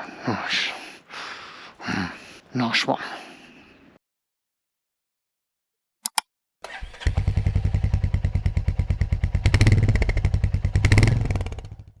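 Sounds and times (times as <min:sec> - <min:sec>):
motorcycle engine running: 0:06.7 - 0:12.0.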